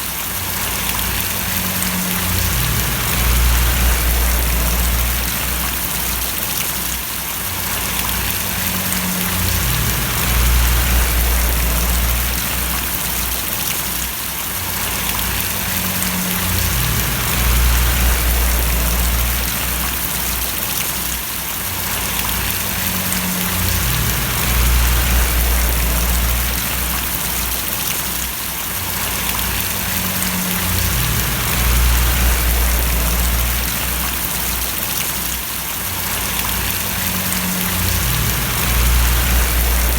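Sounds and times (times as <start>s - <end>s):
steady rain falling: 0.0s - 39.9s
low cycling hum: 1.0s - 6.4s, 8.3s - 13.6s, 15.2s - 20.4s, 22.5s - 27.9s, 29.2s - 34.6s, 36.7s - 39.9s.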